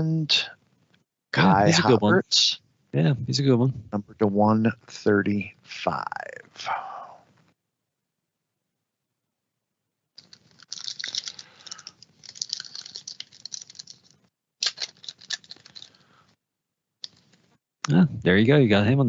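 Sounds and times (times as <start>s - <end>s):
trading cards flipped by hand: 10.2s - 16.0s, 17.0s - 17.5s.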